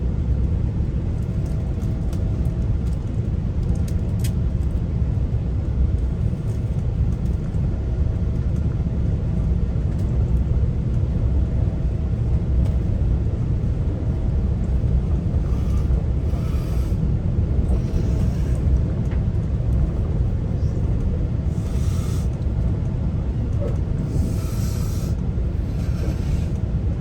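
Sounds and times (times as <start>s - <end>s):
train rumbling: 0.0s - 27.0s
faint steady hum: 12.1s - 27.0s
soft hissing: 15.4s - 17.0s, 17.7s - 18.7s, 21.5s - 22.4s, 24.0s - 26.6s.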